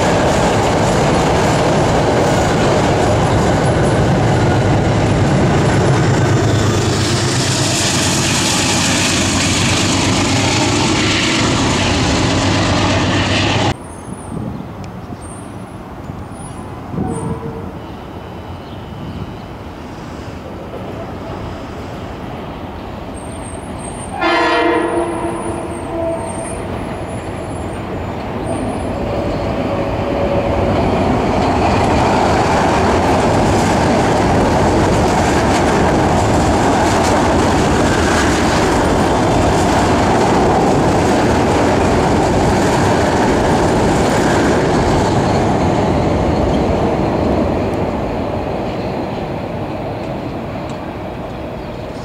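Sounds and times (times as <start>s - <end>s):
train wheels rumbling past: 0.0s - 52.0s
train horn chord: 24.2s - 26.7s.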